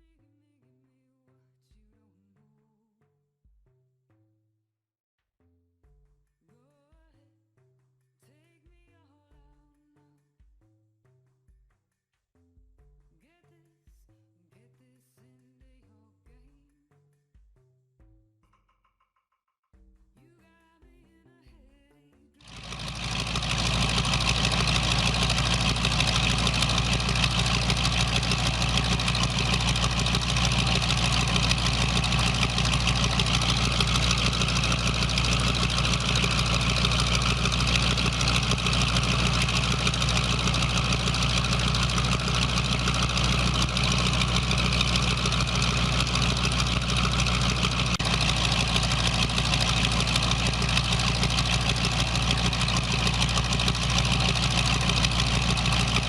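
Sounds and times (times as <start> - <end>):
car engine idling: 22.4 - 56.0.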